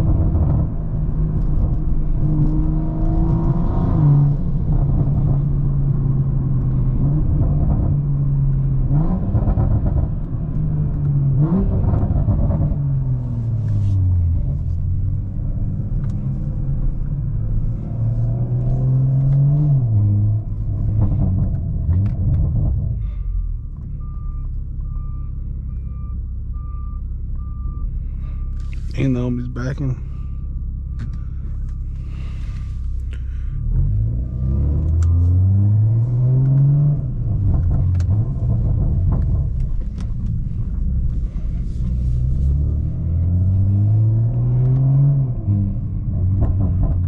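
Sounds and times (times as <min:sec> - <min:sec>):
car engine revving: 0:00.0 - 0:23.0, 0:31.0 - 0:47.0
low road rumble: 0:00.0 - 0:47.0.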